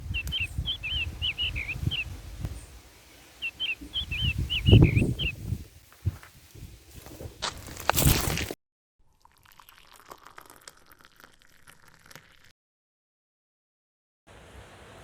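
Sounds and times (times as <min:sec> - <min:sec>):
songbird chirping: 0:00.0 - 0:05.6.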